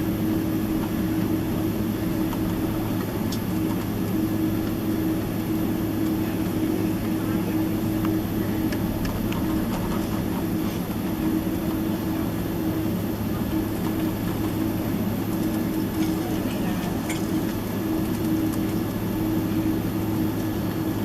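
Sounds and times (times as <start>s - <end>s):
airplane cabin drone: 0.0s - 21.0s.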